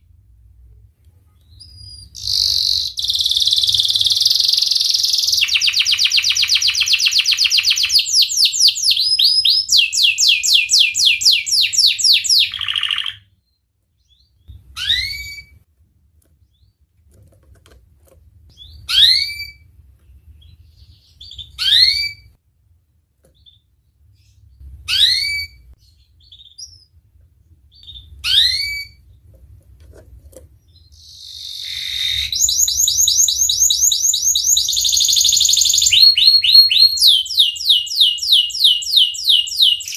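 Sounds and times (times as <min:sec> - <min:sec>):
canary trilling: 0:01.4 - 0:15.6, 0:18.5 - 0:22.4, 0:23.4 - 0:27.0, 0:27.7 - 0:29.2, 0:30.6 - 0:39.9
canary rising chirps: 0:01.5 - 0:13.3, 0:14.0 - 0:15.6, 0:18.5 - 0:19.7, 0:20.4 - 0:22.4, 0:24.2 - 0:26.9, 0:27.7 - 0:29.1, 0:30.7 - 0:39.9.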